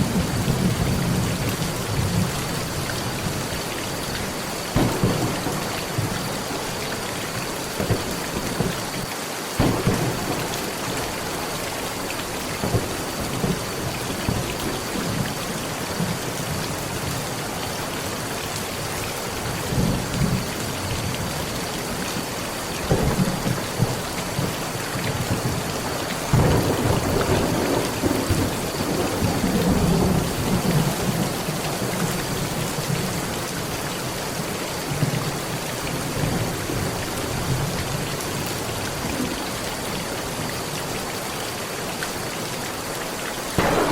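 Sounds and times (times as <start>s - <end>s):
heavy rain on a metal roof: 0.0s - 43.9s
thunder rolling: 4.3s - 9.0s, 9.6s - 15.2s, 22.8s - 31.4s, 43.6s - 43.9s.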